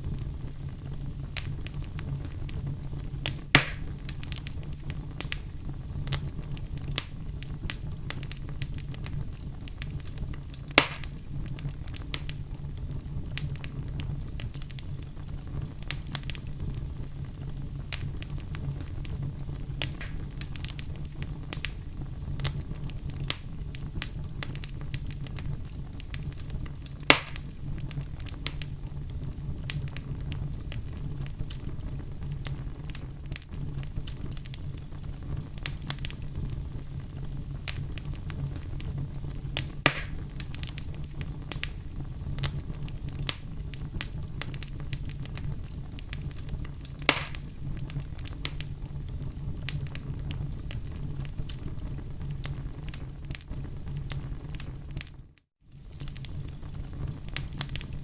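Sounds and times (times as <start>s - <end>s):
fire crackling: 0.0s - 58.0s
fire rumbling: 0.0s - 58.0s
wood fire popping: 0.0s - 58.0s.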